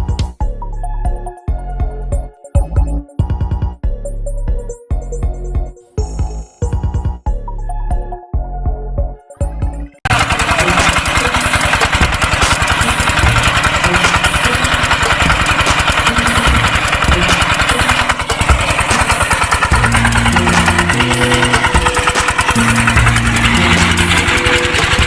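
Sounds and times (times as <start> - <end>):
background music: 0.0 - 25.0
tractor engine running: 9.5 - 25.0.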